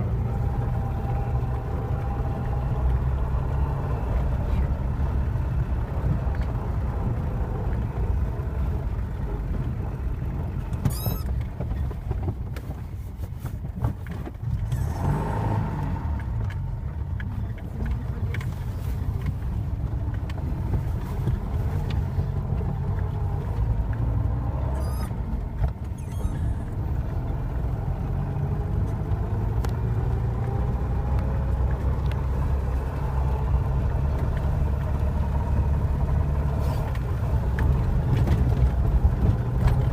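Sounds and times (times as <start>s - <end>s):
car engine droning under load: 0.0s - 39.9s
light clicks and squeaks: 10.7s - 15.1s, 24.6s - 27.1s.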